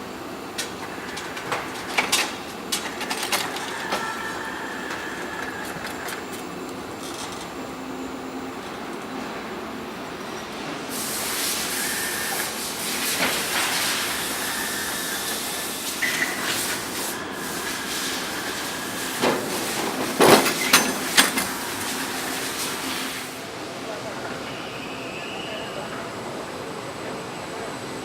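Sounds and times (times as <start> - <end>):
faint machine whine: 0.0 - 11.1, 14.1 - 28.0
steady air hiss: 10.8 - 19.8.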